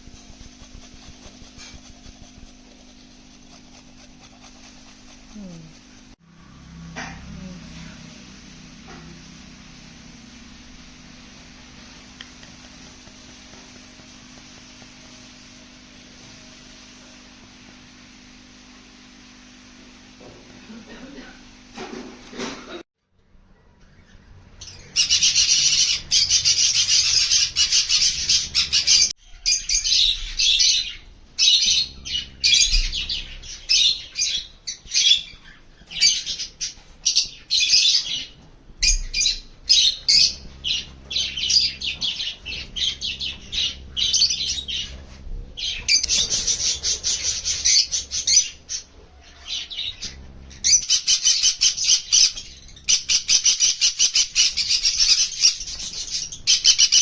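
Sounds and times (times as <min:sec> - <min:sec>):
parrots chattering: 0:24.7 - 0:29.1, 0:45.6 - 0:57.0.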